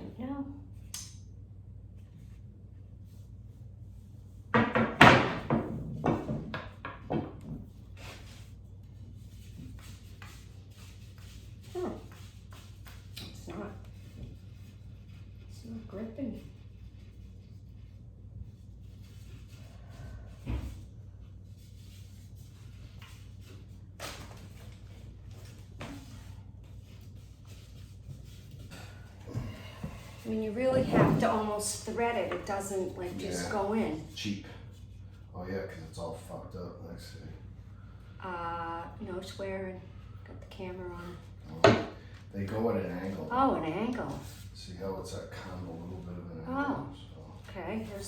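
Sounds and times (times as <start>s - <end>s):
low steady hum: 0.0s - 48.0s
pole knocking and clattering: 30.6s - 31.6s.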